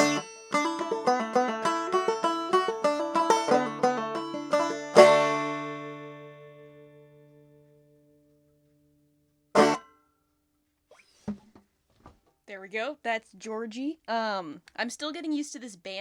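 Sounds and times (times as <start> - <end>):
banjo playing: 0.0 - 8.6, 9.5 - 10.0.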